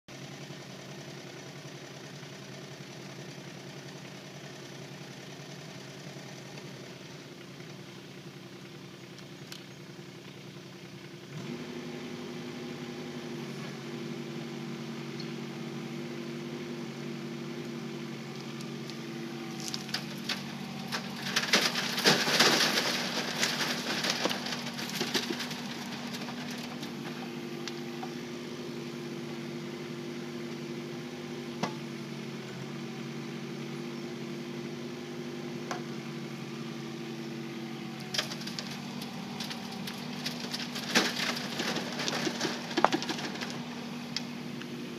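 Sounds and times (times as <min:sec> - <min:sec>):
excavator diesel engine running: 0:00.1 - 0:44.9
stony soil rattling through screen: 0:17.6 - 0:29.0, 0:37.4 - 0:44.9.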